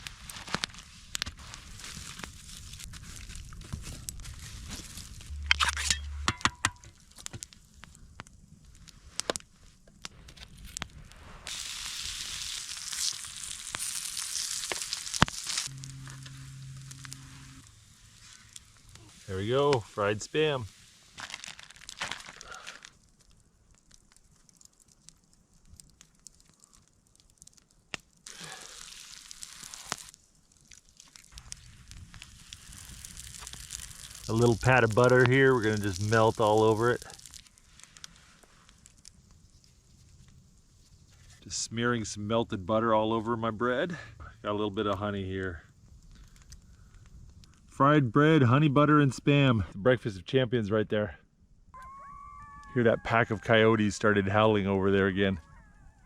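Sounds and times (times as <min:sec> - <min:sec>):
crinkling and rustling: 0:00.0 - 0:11.5, 0:12.9 - 0:28.2
fire hissing: 0:00.0 - 0:42.6
campfire crackling and popping: 0:00.0 - 0:47.9, 0:51.6 - 0:55.9
clicks and knocks: 0:05.5 - 0:06.9.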